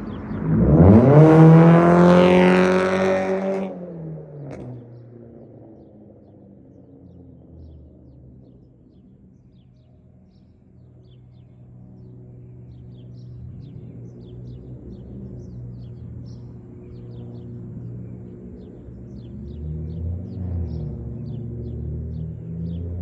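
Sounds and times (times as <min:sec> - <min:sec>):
birds chirping: 0:05.8 - 0:23.0.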